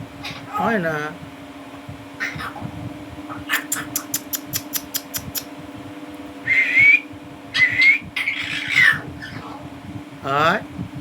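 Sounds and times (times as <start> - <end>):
myna bird clicking: 3.6 - 5.5
myna bird rising whistles: 6.4 - 9.0.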